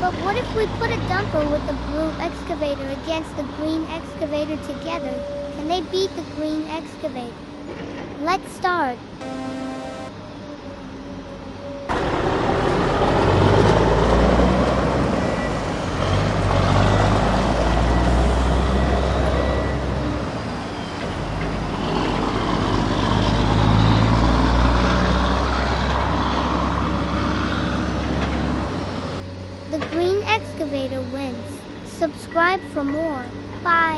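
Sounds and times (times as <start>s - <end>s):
heavy vehicle engine drone: 9.0s - 33.9s.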